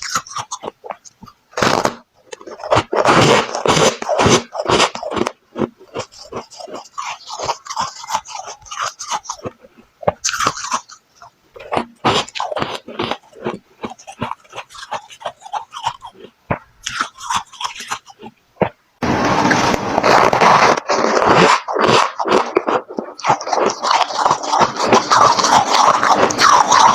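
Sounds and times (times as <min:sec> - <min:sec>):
chewing crunchy frost: 0:00.0 - 0:18.8, 0:19.5 - 0:26.9.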